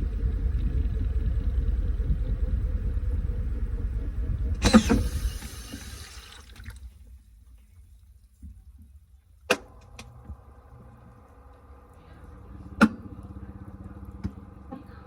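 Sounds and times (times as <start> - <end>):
washing machine motor humming: 0.0 - 6.9, 9.6 - 15.0
sharp clunks: 4.6 - 6.0.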